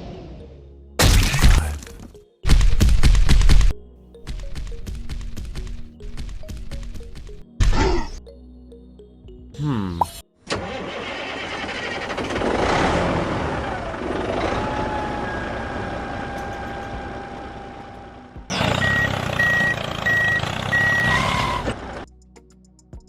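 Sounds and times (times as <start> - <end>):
heavy vehicle engine rumbling: 10.6 - 22.0
reversing alarm beeping: 18.5 - 21.8.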